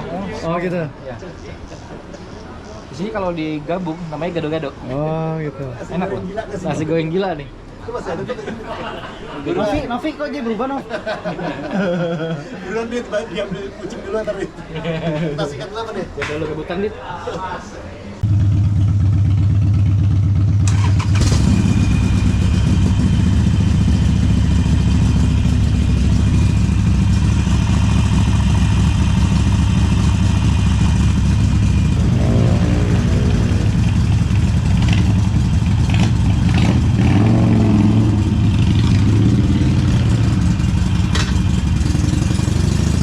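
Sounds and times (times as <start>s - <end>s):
motorcycle engine idling: 18.2s - 37.1s, 38.0s - 43.0s.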